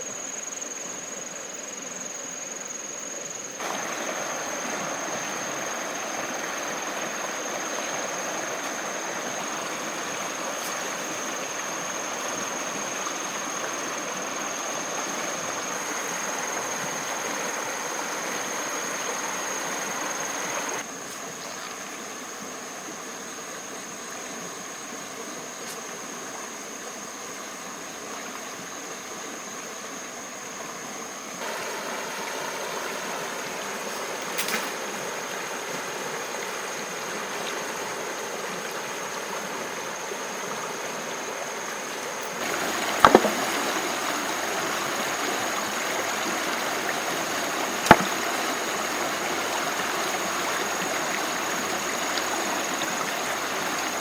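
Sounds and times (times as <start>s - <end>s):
stream water flowing: 0.0s - 54.0s
sharp knocks: 43.0s - 43.5s, 47.8s - 48.2s.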